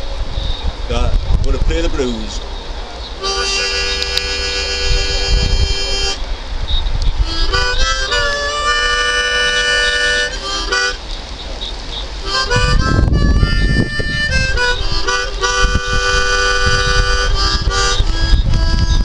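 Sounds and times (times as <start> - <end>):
blues harmonica playing: 3.2 - 6.2, 7.2 - 11.1, 12.2 - 19.0.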